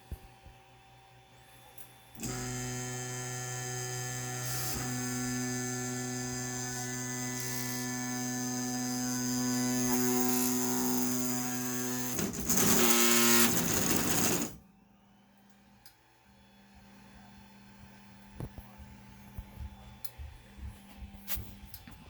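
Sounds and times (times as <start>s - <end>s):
printer stepper motors whining: 6.9s - 14.6s.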